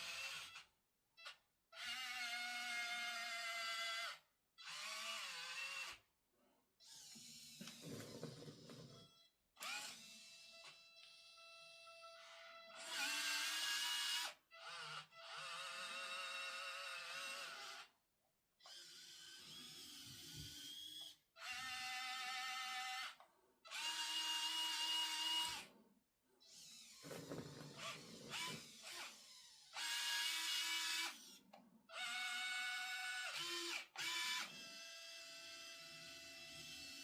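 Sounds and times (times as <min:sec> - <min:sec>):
small electric motors whining: 0:06.8 - 0:17.9, 0:18.6 - 0:25.7, 0:26.4 - 0:31.4, 0:32.0 - 0:37.0.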